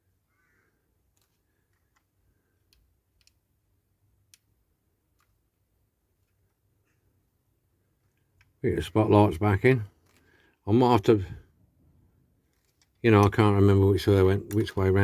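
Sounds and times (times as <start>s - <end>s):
faint clicks of small model parts: 0.8s - 8.6s, 9.9s - 10.6s, 12.4s - 15.0s.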